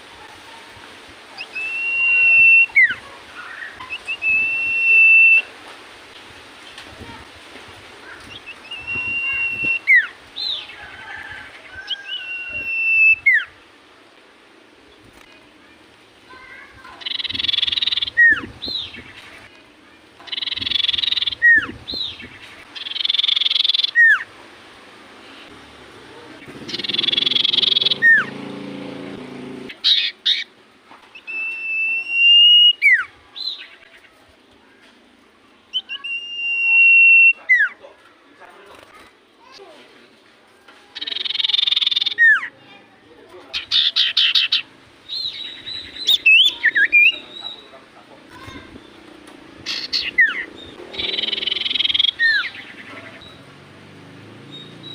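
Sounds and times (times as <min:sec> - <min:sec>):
bird whistling: 0:01.4 - 0:05.5, 0:08.4 - 0:10.1, 0:11.9 - 0:13.5, 0:26.7 - 0:28.3, 0:31.1 - 0:33.1, 0:35.7 - 0:37.7, 0:41.0 - 0:42.5, 0:43.7 - 0:47.6, 0:49.7 - 0:52.6.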